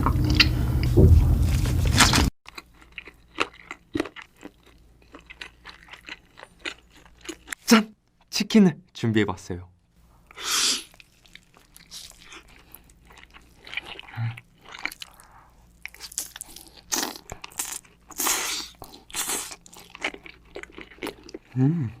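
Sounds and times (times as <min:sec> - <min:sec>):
crunchy chewing of fried chicken: 0:01.9 - 0:07.6, 0:10.8 - 0:21.6.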